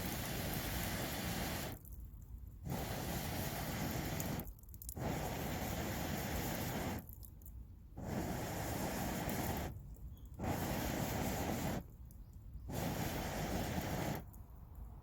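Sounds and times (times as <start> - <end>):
person blowing onto campfire: 2.7 - 7.0, 8.0 - 9.8, 10.4 - 11.8, 12.7 - 14.3.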